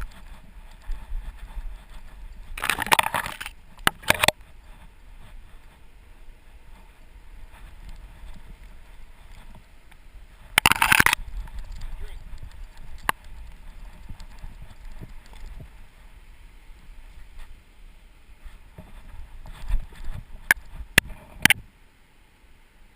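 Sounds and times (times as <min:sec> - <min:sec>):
camera harness scraping: 0:00.0 - 0:04.4, 0:10.6 - 0:15.6
low wind rumble: 0:00.0 - 0:22.9.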